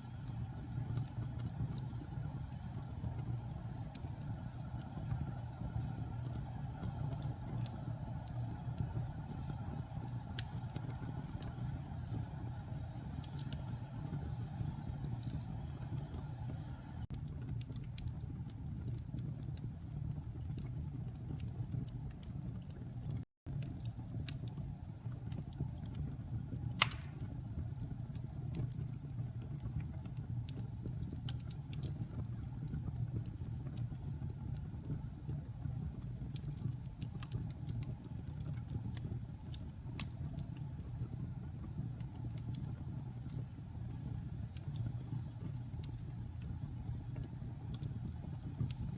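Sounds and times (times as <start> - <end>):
fire crackling: 0.0 - 48.9
fire flames rumbling: 0.0 - 48.9
loud fire pop: 26.8 - 27.3.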